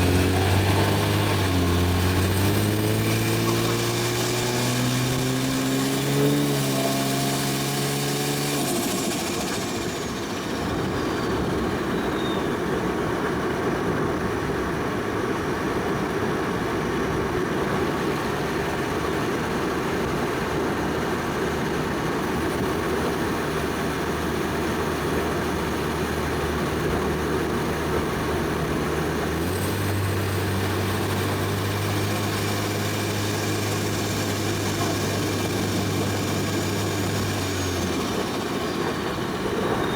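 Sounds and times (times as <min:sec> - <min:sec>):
car engine running: 0:00.0 - 0:12.3, 0:16.0 - 0:39.9
road drone: 0:00.0 - 0:39.9
turbo whistle: 0:08.6 - 0:12.8.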